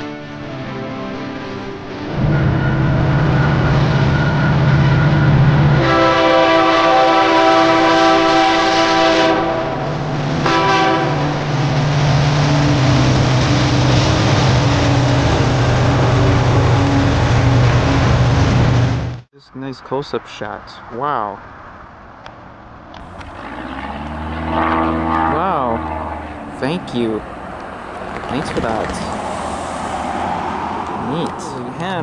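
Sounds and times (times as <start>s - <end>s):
chord of steady tones: 0.0s - 13.2s
propeller aircraft low drone: 0.0s - 19.2s, 20.2s - 32.0s.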